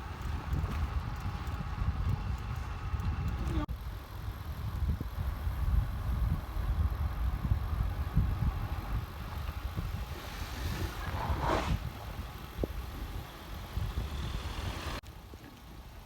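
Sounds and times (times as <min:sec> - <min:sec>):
wind rumbling on microphone: 0:00.0 - 0:16.0
vehicle rushing past: 0:10.0 - 0:12.3.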